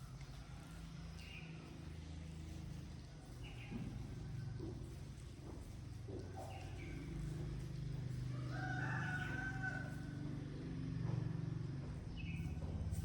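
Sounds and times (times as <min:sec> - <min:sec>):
rooster crowing: 0:08.3 - 0:10.3.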